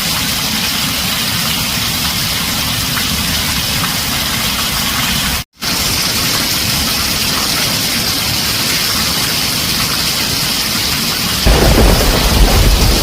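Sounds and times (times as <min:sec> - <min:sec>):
heavy rain on a tin roof: 0:00.0 - 0:13.0
thunder rumble: 0:11.4 - 0:13.0.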